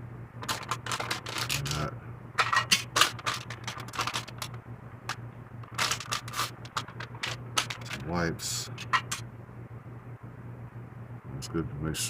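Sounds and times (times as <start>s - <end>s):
steady low hum: 0.0s - 12.0s
hands handling small objects: 0.4s - 8.1s.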